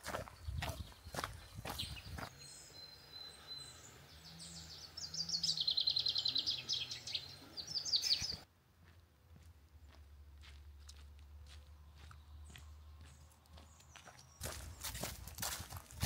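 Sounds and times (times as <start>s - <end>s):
faint footsteps: 0.0s - 2.4s, 8.2s - 16.0s
songbird singing a trill: 0.2s - 8.5s, 11.8s - 15.2s.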